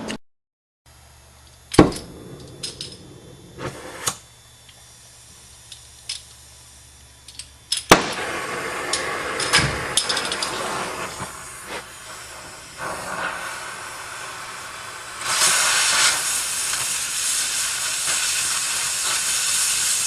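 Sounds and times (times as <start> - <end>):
torch lighting pop: 1.7 - 4.2, 7.8 - 13.6
cutting torch hissing and crackling: 1.7 - 20.0.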